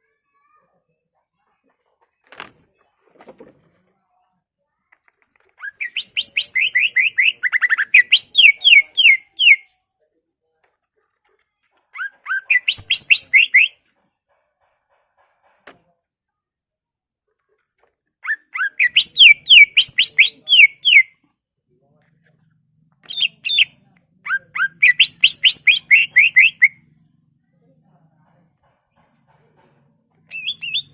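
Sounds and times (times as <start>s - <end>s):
bird singing whistled notes: 5.8s - 9.6s, 12.5s - 13.7s, 18.6s - 21.1s, 24.6s - 26.8s, 30.4s - 30.9s.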